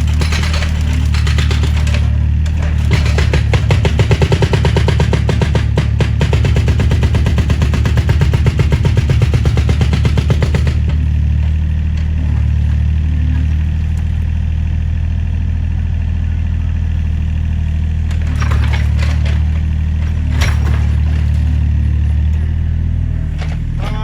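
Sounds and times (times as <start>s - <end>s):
excavator diesel engine running: 0.0s - 24.0s
sharp knocks: 0.1s - 11.1s.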